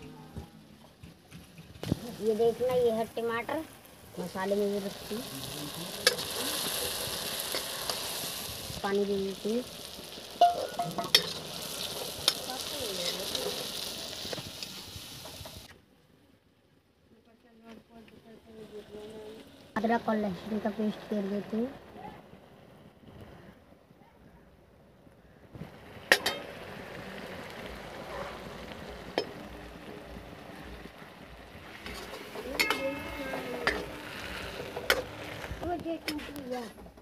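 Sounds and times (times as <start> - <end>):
sauce sizzling in hot oil: 1.6 - 15.7, 18.6 - 22.0, 25.6 - 36.2
ladle stirring: 10.4 - 13.7.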